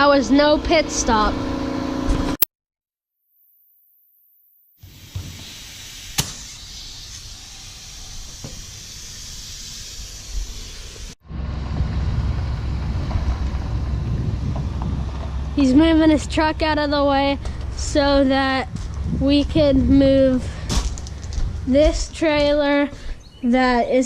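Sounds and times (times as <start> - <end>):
steady hiss: 4.8 - 11.2
truck engine rumbling: 4.9 - 23.8
sharp click: 6.1 - 6.6.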